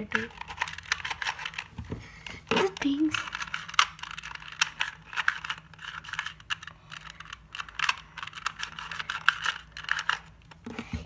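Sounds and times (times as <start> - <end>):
plastic puzzle cube clicking: 3.2 - 10.3.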